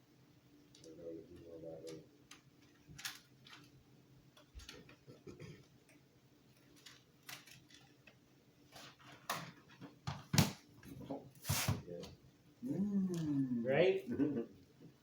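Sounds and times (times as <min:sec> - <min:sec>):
small parts and packaging clicking: 0:00.7 - 0:09.8.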